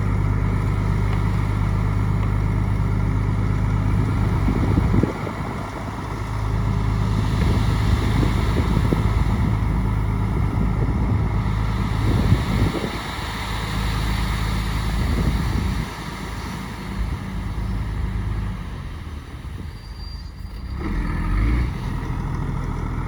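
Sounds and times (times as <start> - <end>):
bulldozer diesel engine running: 0.0 - 23.0.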